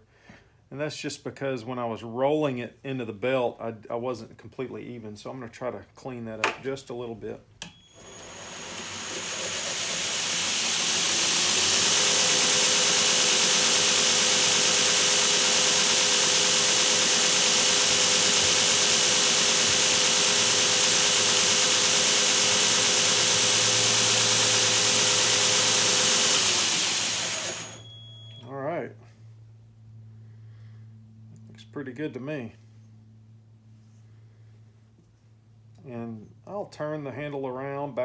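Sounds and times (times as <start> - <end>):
belt grinder sanding wood: 8.0 - 28.4.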